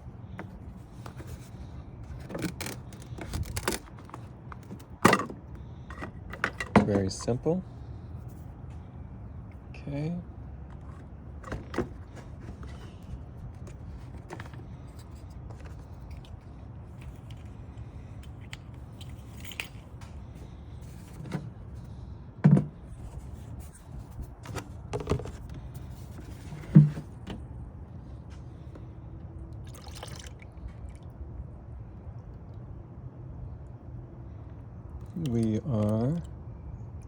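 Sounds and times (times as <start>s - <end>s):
steady low hum: 0.0s - 37.0s
tools knocking and scraping: 2.2s - 7.2s.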